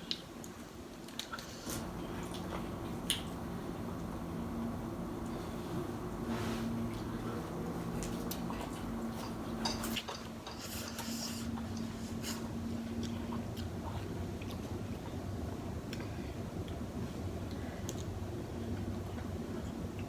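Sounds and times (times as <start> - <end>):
low steady hum: 1.7 - 10.2
chewing and mouth noises: 6.9 - 10.9.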